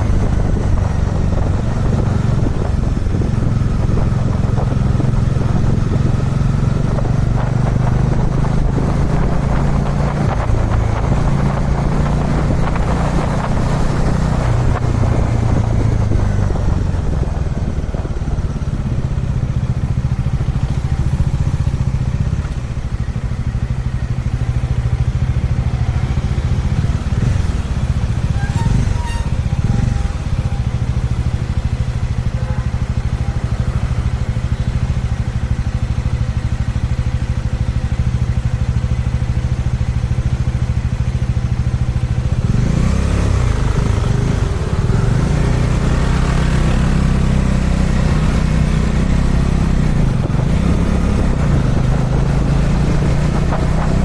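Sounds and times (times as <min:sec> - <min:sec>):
wind noise: 0:00.0 - 0:23.0, 0:42.3 - 0:54.0
motorcycle engine running: 0:00.0 - 0:54.0.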